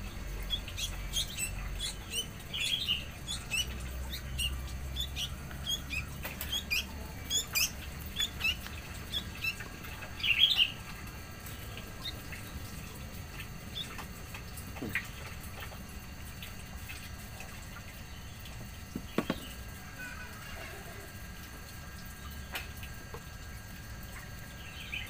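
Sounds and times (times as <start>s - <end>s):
small birds chirping: 0.0s - 12.7s, 18.0s - 19.7s, 24.5s - 25.0s.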